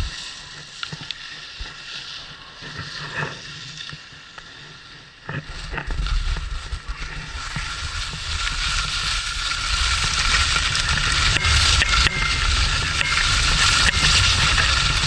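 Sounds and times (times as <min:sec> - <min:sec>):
skis sliding over snow: 0:00.0 - 0:15.0
wind buffeting microphone: 0:05.4 - 0:15.0.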